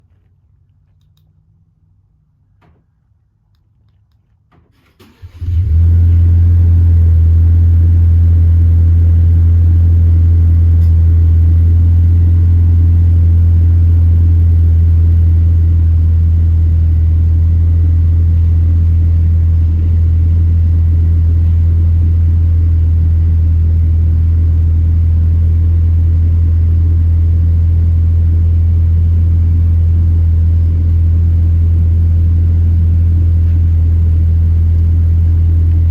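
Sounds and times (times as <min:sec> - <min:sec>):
truck engine starting and idling: 0:04.7 - 0:35.9.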